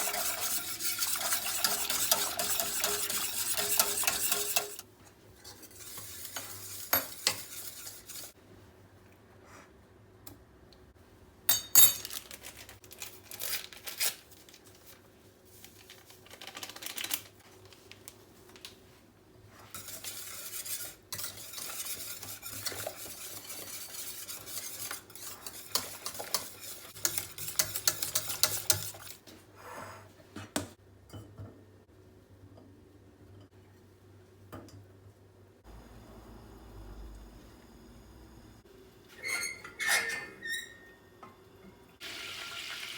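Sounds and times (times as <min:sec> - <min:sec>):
spoon stirring and scraping: 0:00.0 - 0:08.4, 0:19.5 - 0:29.3.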